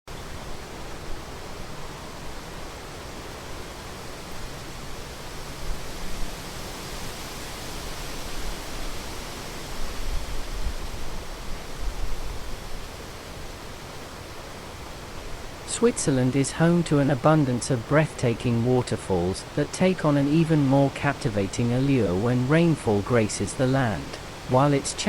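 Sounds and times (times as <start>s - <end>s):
waterfall rushing: 0.4s - 25.0s.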